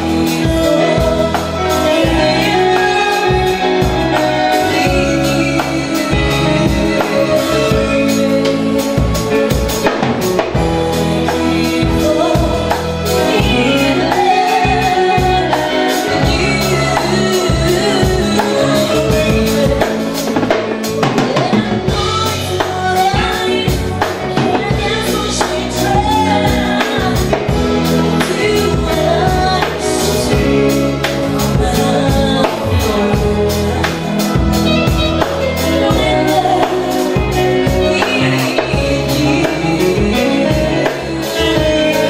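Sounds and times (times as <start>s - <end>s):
drum kit beat: 0.0s - 42.0s
live band playing: 0.0s - 42.0s
person singing: 0.0s - 42.0s.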